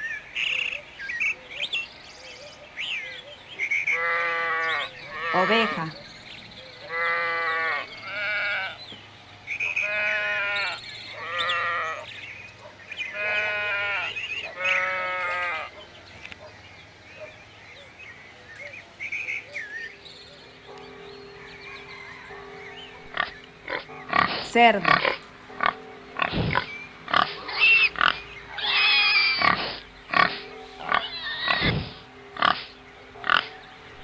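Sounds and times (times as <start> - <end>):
sheep bleating: 3.9 - 6.0, 6.9 - 8.8, 9.8 - 12.0, 13.1 - 15.7.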